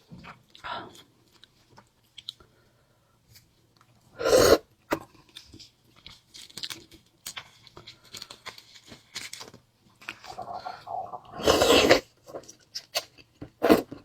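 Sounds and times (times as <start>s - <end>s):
person chewing crunchy food: 10.1s - 14.0s
loud mouth noise: 10.3s - 12.0s.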